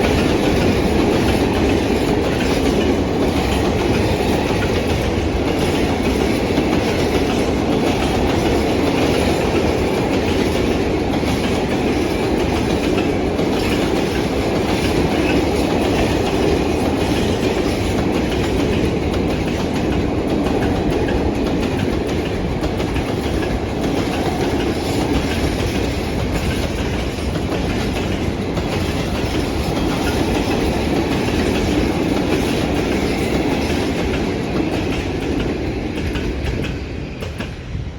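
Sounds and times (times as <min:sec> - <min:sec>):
clickety-clack over rail joints: 0:00.0 - 0:37.9
train wheels rumbling on rails: 0:00.0 - 0:37.9.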